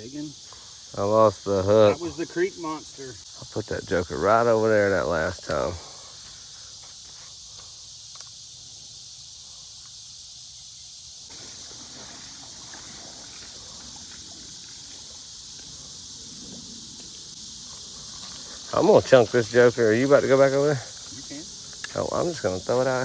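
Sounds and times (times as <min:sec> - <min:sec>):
insects shrilling: 0:00.0 - 0:23.0.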